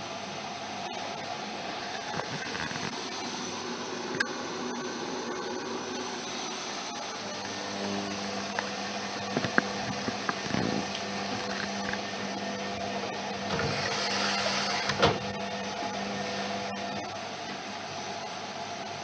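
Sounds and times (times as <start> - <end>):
washing machine drum motor humming: 7.0 - 18.9.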